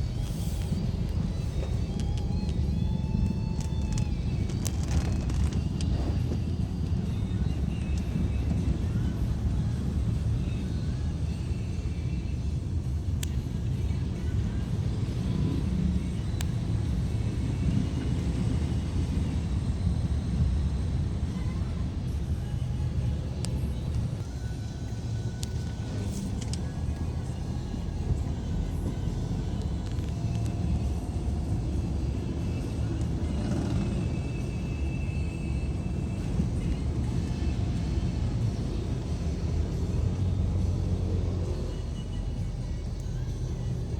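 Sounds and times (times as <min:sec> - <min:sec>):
faint high whine: 0:00.0 - 0:43.9
vehicle rumble driving on road: 0:00.0 - 0:43.9.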